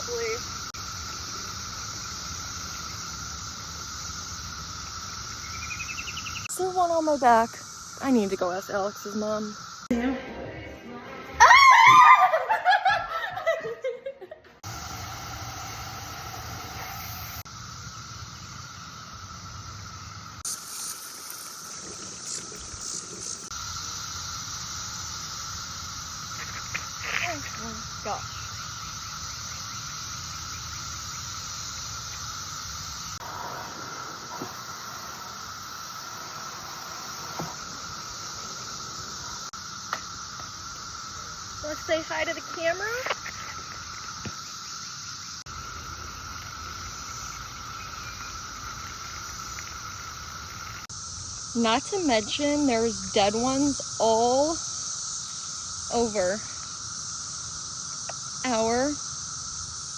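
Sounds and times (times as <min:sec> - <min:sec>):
cicada chorus drone: 0:00.0 - 0:59.9
person laughing: 0:11.9 - 0:14.6.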